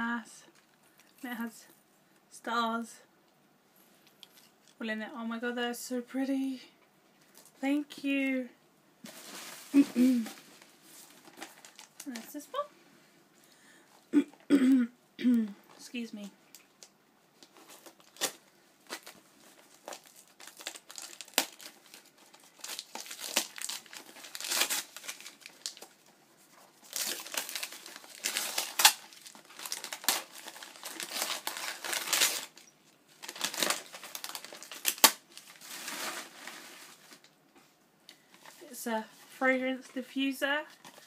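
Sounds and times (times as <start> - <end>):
packaging crinkling and tearing: 9.1 - 12.5, 16.5 - 37.4.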